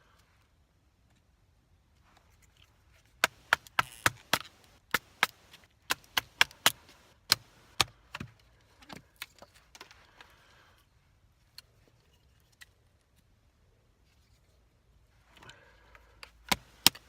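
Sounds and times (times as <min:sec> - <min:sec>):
wood splitting knocks: 0:03.2 - 0:08.3.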